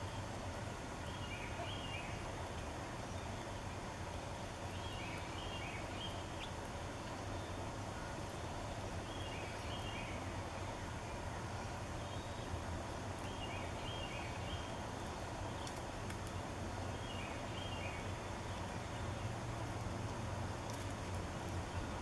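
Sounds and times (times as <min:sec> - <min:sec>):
outdoor background hum: 0:00.0 - 0:22.0
songbird calling: 0:01.0 - 0:02.4, 0:04.7 - 0:12.6, 0:13.2 - 0:19.3.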